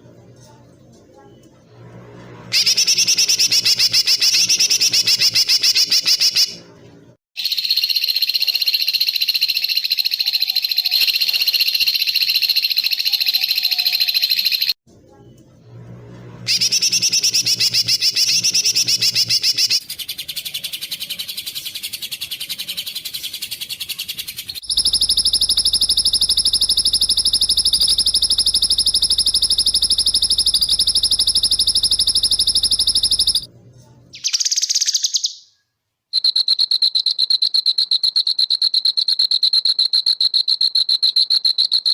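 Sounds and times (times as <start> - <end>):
high bird trill: 2.5 - 6.6, 7.4 - 14.8, 16.5 - 33.5
songbird rapid chirping: 2.5 - 6.6, 7.4 - 15.7, 16.5 - 33.5, 34.1 - 35.6.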